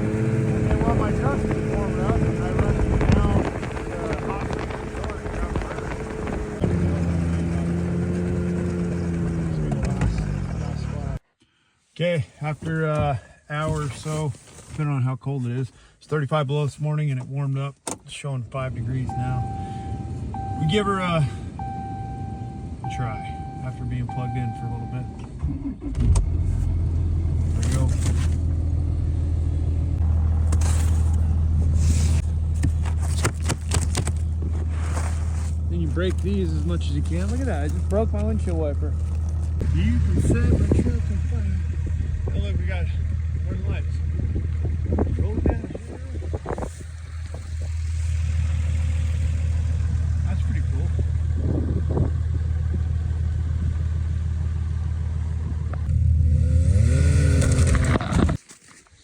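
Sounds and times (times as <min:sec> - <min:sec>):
truck engine idling: 0:19.1 - 0:25.1, 0:26.3 - 0:33.1, 0:34.1 - 0:55.9.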